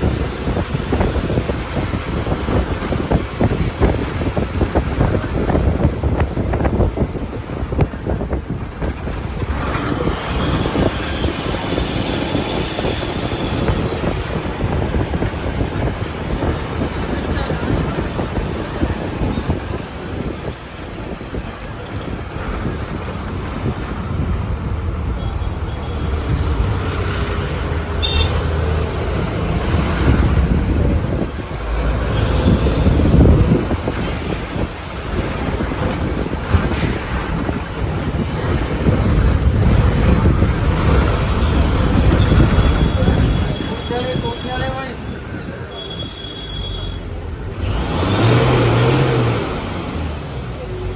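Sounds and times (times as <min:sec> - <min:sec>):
loud rumbling noise: 0:00.0 - 0:45.6, 0:47.0 - 0:50.9
wind buffeting microphone: 0:00.0 - 0:45.8.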